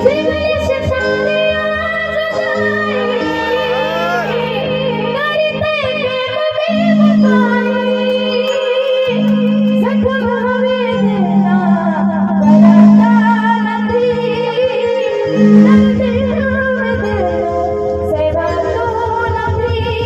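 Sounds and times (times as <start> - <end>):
woman singing long held notes: 3.0 - 4.7.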